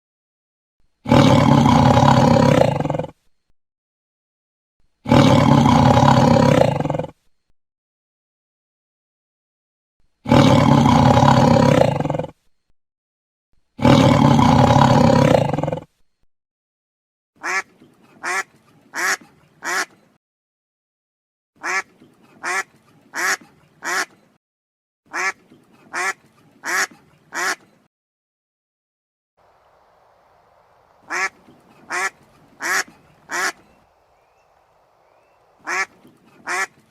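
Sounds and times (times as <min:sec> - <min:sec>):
tiger roaring: 0:01.0 - 0:03.2, 0:05.0 - 0:07.2, 0:10.2 - 0:12.4, 0:13.8 - 0:15.9
duck quacking: 0:17.4 - 0:20.0, 0:21.6 - 0:24.2, 0:25.1 - 0:27.7, 0:31.0 - 0:33.7, 0:35.6 - 0:36.9.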